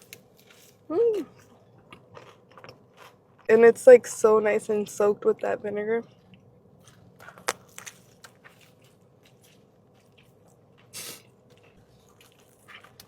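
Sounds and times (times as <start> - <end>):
person chewing sandwich: 0.0 - 3.5, 6.0 - 13.0.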